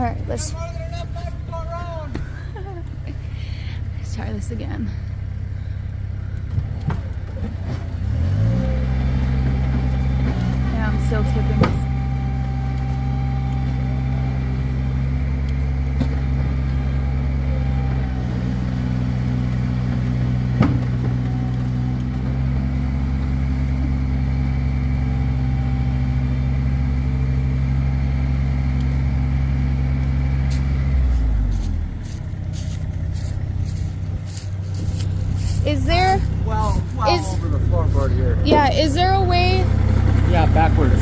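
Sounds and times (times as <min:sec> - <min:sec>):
vehicle engine running: 0:00.0 - 0:41.0.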